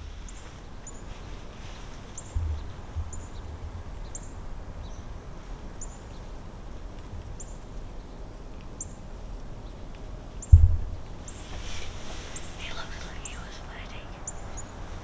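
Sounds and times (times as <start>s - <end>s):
low wind rumble: 0.0s - 15.0s
small bird chirping: 11.2s - 15.0s.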